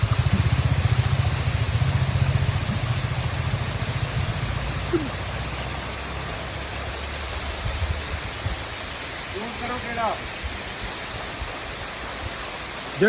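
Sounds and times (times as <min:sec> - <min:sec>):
vehicle engine idling: 0:00.0 - 0:07.2
steady hiss: 0:00.0 - 0:13.0.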